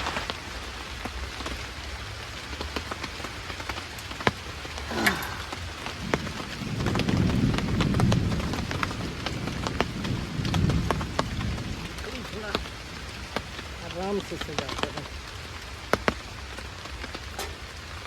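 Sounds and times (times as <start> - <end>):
raindrops ticking on a tarp: 0.0 - 18.0
steady rain: 0.0 - 18.0
thunder rumble: 4.6 - 15.2.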